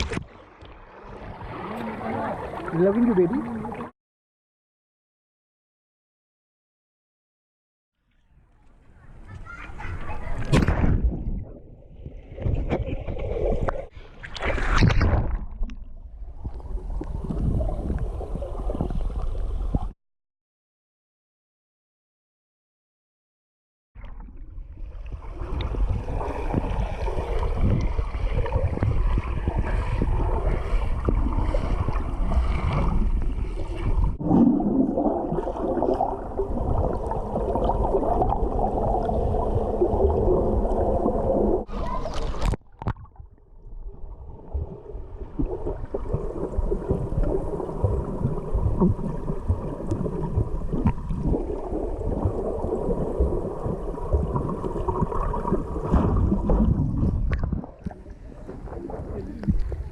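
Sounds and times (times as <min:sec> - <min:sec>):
muffled underwater rumbling and bubbling: 0:09.0 - 0:19.9, 0:24.0 - 0:59.9.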